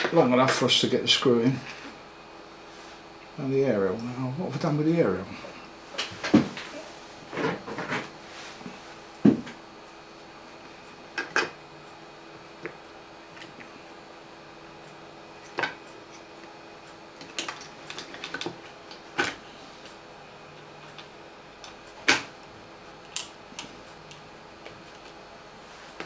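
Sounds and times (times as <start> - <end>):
small parts clicking and knocking: 23.0 - 24.2.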